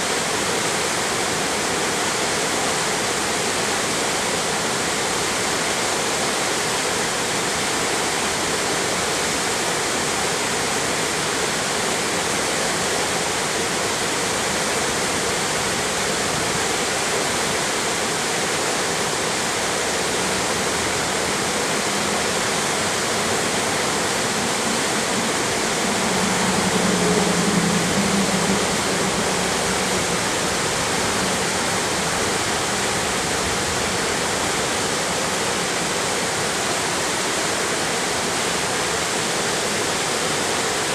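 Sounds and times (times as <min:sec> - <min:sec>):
rushing water of stream and waterfall: 0:00.0 - 0:40.9
low hum: 0:21.6 - 0:34.5.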